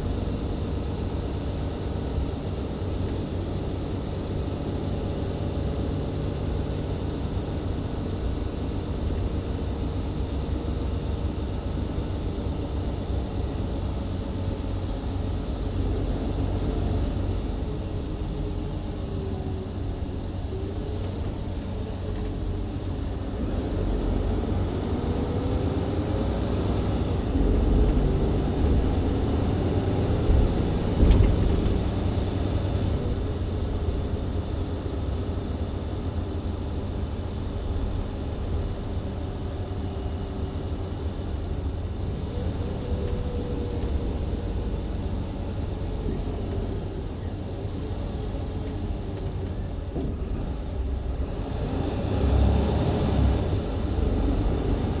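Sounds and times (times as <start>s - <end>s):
bus engine and road noise: 0.0s - 55.0s
drivetrain whine: 0.0s - 55.0s.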